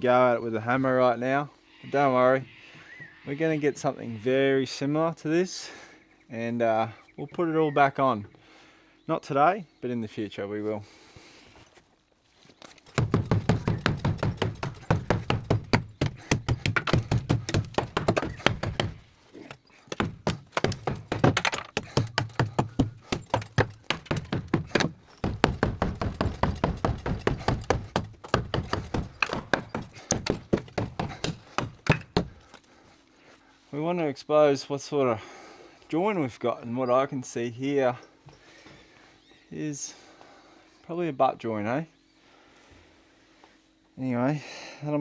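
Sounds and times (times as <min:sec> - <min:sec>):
hammer blows smashing timber: 0:12.9 - 0:32.6.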